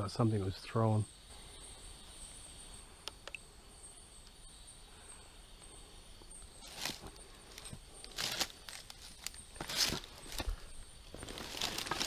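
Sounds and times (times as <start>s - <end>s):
insects trilling: 0.0s - 12.0s
faint clicks: 3.0s - 3.4s.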